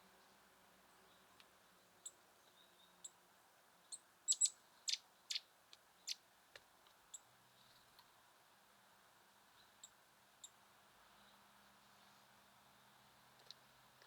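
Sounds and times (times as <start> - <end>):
songbirds high-pitched calls: 3.8 - 6.2.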